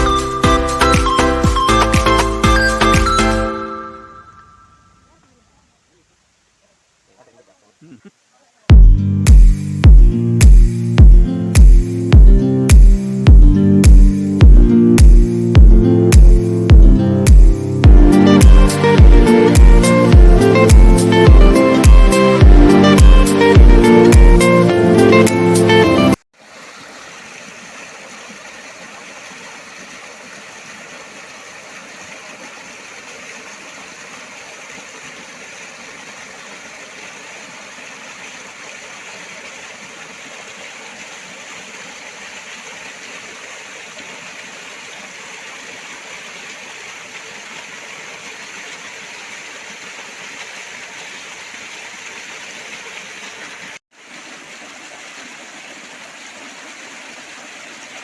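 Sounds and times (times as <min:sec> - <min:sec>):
waterfall rushing and splashing: 0:16.2 - 0:58.0.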